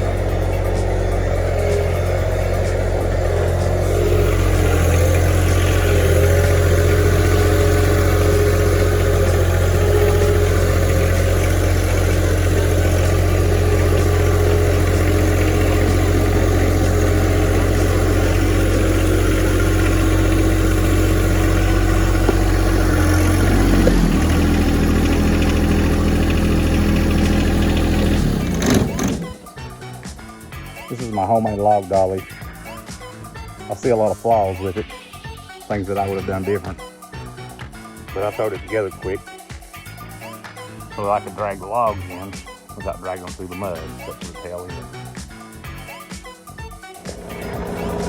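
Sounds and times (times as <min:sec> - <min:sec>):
tractor engine running: 0:00.0 - 0:29.7, 0:47.0 - 0:48.0.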